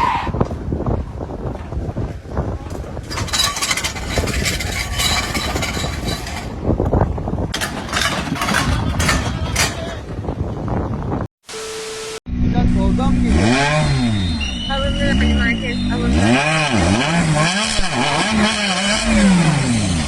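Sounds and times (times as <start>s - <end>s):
motor vehicle running: 0.5s - 11.1s
short knocks or scrapes: 2.9s - 6.8s, 7.5s - 10.4s.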